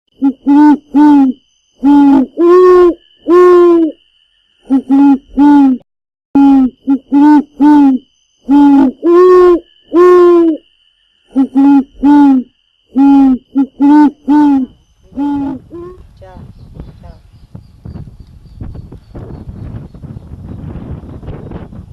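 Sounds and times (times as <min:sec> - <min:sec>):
woodpecker calling: 0:11.3 - 0:16.0.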